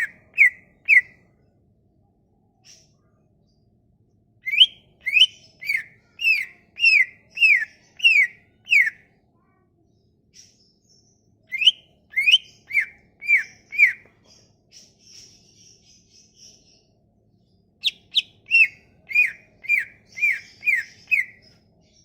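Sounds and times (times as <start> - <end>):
songbird whistling: 0.0 - 1.2, 4.4 - 9.0, 11.5 - 14.1, 17.8 - 21.6
faint high chirps: 0.0 - 22.0.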